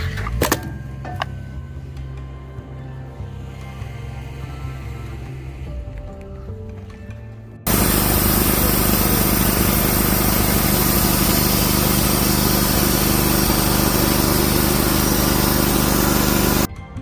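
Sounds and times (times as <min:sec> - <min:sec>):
band sawmill engine running: 0:07.7 - 0:16.7.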